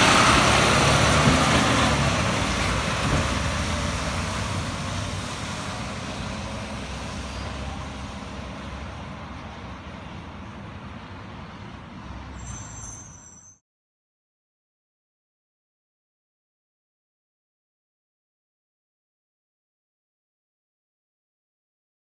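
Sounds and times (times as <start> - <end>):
garbage truck engine: 0.0 - 13.5
high squeal: 12.2 - 13.6.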